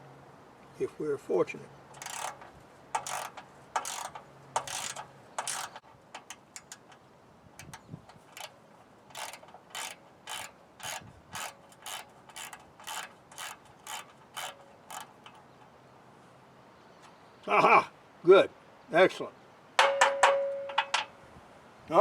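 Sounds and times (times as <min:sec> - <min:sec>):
ratchet wrench clicking: 0:01.9 - 0:07.0, 0:07.6 - 0:15.7.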